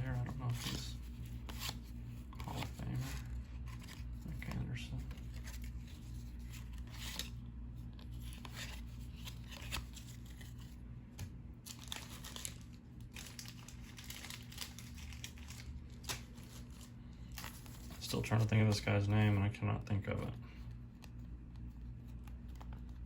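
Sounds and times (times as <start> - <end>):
paper rustling and crinkling: 0.0 - 19.5, 20.8 - 23.0
steady low hum: 0.0 - 23.0.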